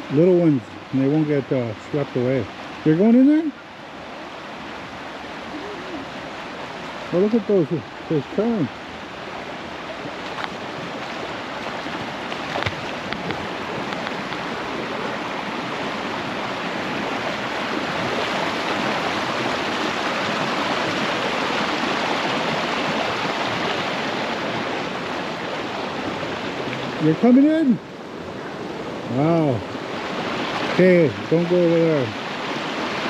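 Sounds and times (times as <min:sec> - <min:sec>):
river rushing through rapids: 0:00.0 - 0:33.0.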